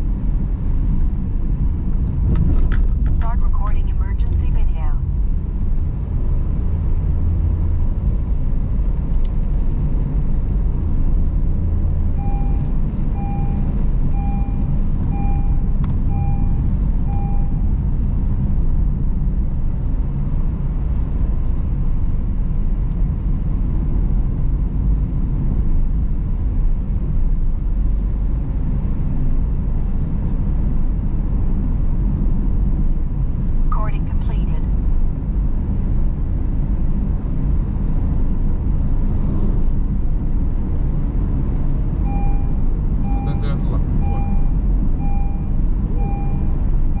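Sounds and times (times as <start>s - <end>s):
car engine and tyres rumble: 0.0s - 47.0s
short electronic beeps: 12.2s - 17.7s, 42.1s - 47.0s.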